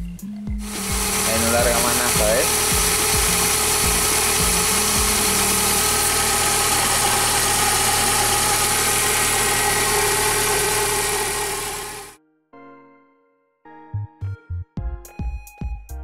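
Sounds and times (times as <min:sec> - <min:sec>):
pulsing low beat: 0:00.0 - 0:11.7
car engine idling: 0:00.6 - 0:12.2.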